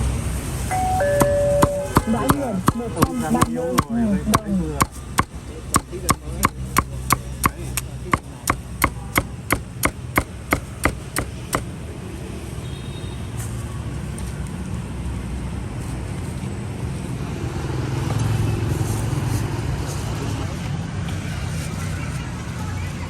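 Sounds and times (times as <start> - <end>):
low rumble of street traffic: 0.0 - 23.0
cleaver chopping meat on board: 1.2 - 11.7.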